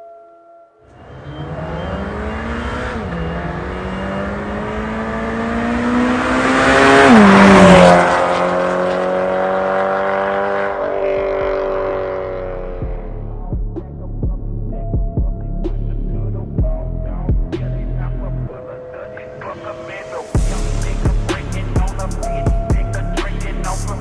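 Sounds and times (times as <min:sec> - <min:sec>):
car engine accelerating: 0:00.9 - 0:14.9.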